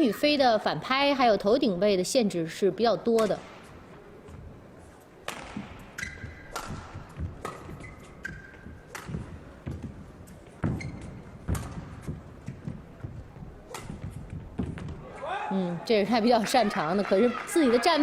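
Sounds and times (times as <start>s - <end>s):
racket striking shuttlecock: 3.1s - 3.8s, 5.2s - 12.8s, 13.6s - 15.0s
shoes squeaking on court floor: 3.1s - 15.2s.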